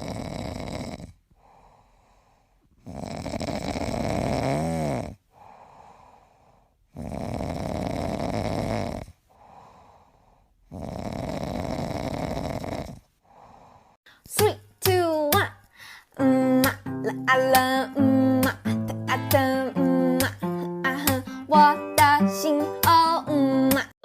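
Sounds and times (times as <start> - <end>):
cat snoring: 0.0 - 14.0.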